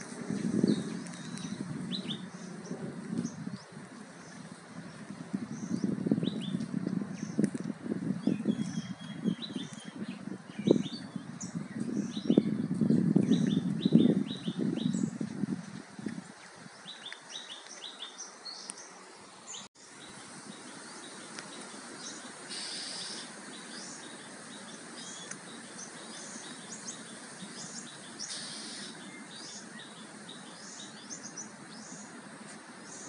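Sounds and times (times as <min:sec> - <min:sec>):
small birds chirping: 0:00.0 - 0:15.4, 0:16.0 - 0:33.0
outdoor background hiss: 0:00.0 - 0:33.0
short bursts of high hiss: 0:21.8 - 0:23.4, 0:28.2 - 0:29.0.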